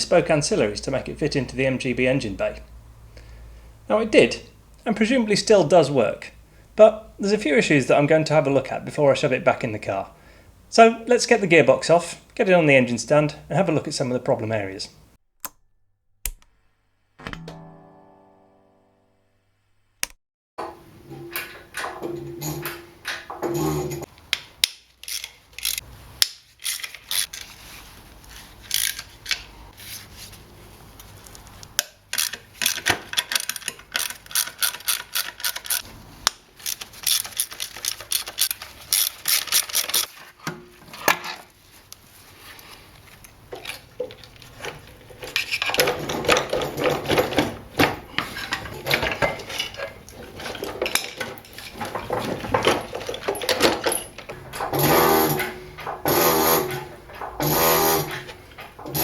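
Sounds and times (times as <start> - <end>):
ratchet wrench clicking: 25.0 - 27.3, 28.7 - 29.1, 32.1 - 35.8, 36.6 - 40.1
metal tools clinking: 32.1 - 35.8, 36.6 - 40.1, 43.6 - 59.0.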